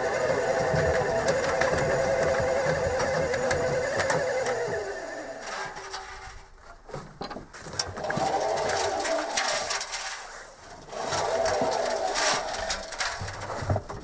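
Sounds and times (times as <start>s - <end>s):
washing machine motor whining: 0.0s - 5.9s, 7.9s - 9.8s, 10.8s - 13.4s
washing machine clicking: 0.1s - 4.8s.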